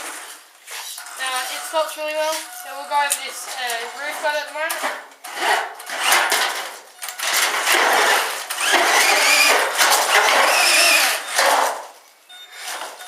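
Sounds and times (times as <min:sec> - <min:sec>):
tyres scrabbling on rough ground: 0:00.0 - 0:05.1
toy truck electric motor whining: 0:07.8 - 0:09.6, 0:10.2 - 0:11.3.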